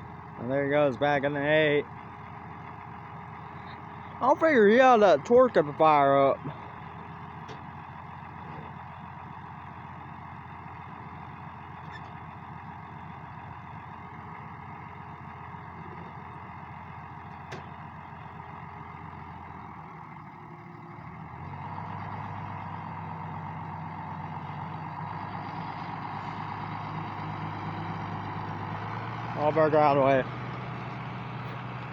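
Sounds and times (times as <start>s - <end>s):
tractor engine running: 0.0s - 31.9s.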